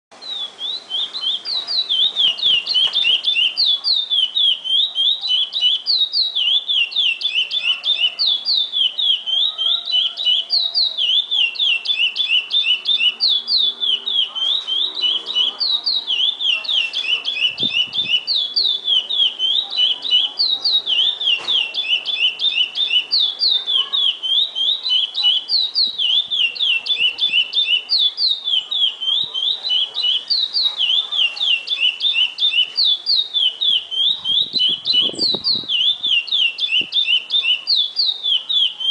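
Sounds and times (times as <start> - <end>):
finch singing whistled notes: 0.1 - 38.9.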